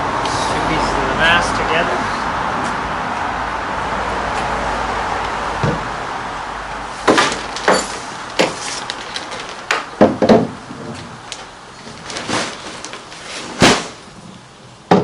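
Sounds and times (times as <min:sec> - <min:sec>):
mast sections scraping: 0:10.9 - 0:14.2.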